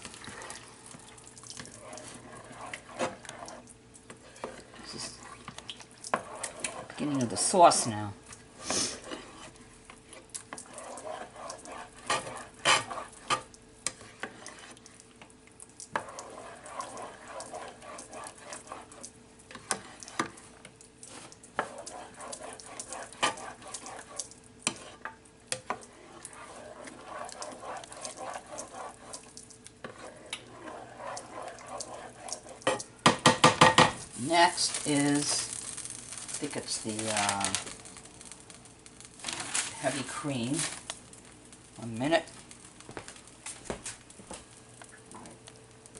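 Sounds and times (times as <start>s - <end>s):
sauce simmering and sizzling in pan: 0.0s - 45.9s
utensil knocking and scraping pan: 10.5s - 14.7s, 21.6s - 29.2s, 29.8s - 37.8s.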